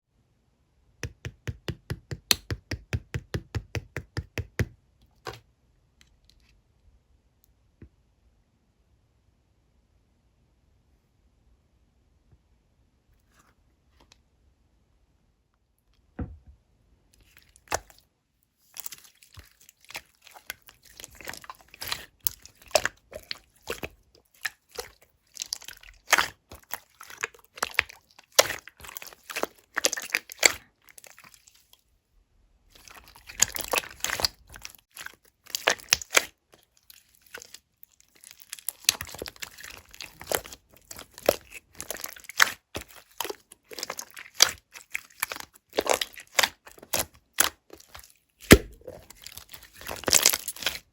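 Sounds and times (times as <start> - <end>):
slime squished by hand: 18.7 - 31.8, 32.7 - 50.9.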